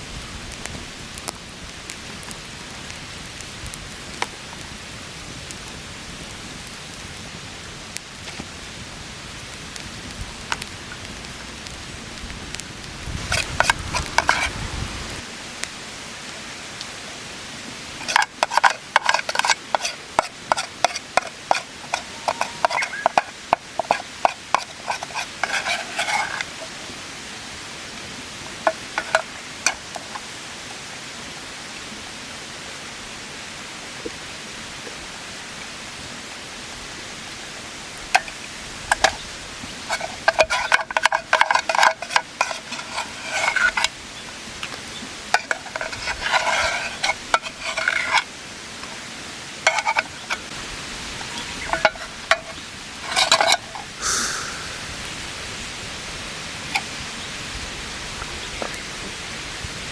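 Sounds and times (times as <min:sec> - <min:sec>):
steady hiss: 0:00.0 - 0:59.9
metal utensil scraping cookware: 0:13.3 - 0:14.6, 0:18.0 - 0:26.7, 0:39.9 - 0:43.9, 0:45.4 - 0:48.3, 0:49.6 - 0:50.5, 0:51.7 - 0:54.4.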